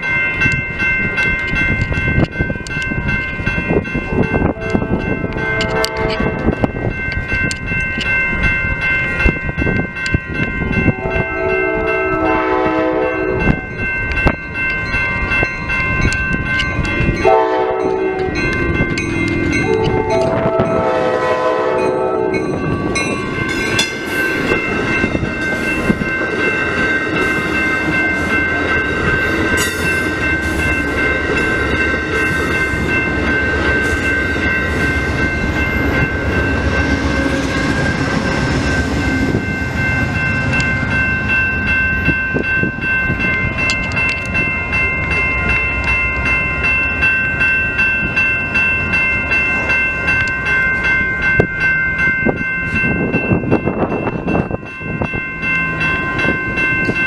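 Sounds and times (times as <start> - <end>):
high ringing: 0.0 - 57.0
train rumble and clatter: 0.0 - 57.0
train horn: 4.4 - 6.5, 10.9 - 13.6, 17.2 - 18.4, 19.7 - 22.4.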